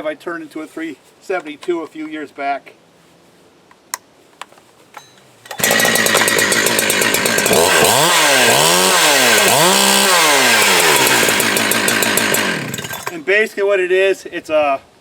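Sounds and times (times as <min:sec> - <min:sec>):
chainsaw engine revving: 0:05.5 - 0:13.2.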